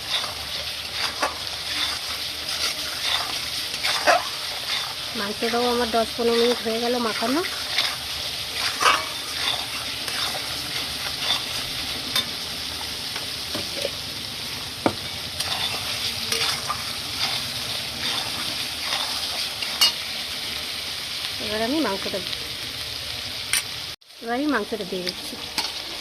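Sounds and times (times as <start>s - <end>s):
spatula stirring and scraping: 0.0s - 20.0s
masala sizzling in oil: 0.0s - 26.0s.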